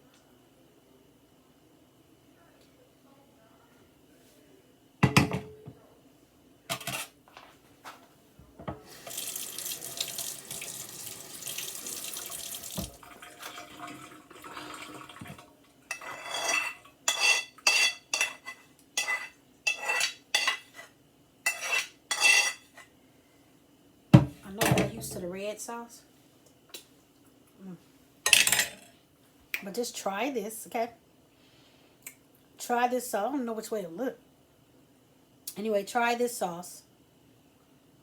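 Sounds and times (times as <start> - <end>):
dishes clinking: 5.0 - 5.7, 15.2 - 20.8, 21.5 - 22.7, 28.3 - 28.9
dishes knocking: 5.0 - 5.8, 24.2 - 25.2
tap running into sink: 8.6 - 15.4.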